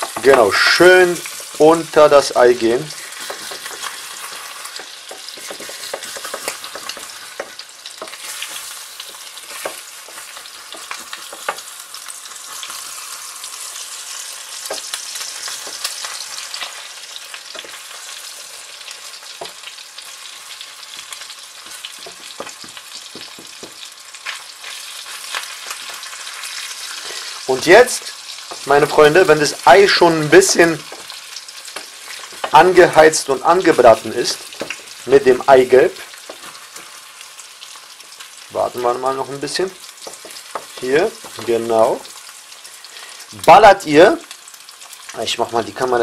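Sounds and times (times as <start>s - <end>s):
bacon and eggs sizzling in a pan: 0.0s - 46.0s
wooden spatula scraping a pan: 2.8s - 11.7s, 30.4s - 32.6s, 36.0s - 37.0s.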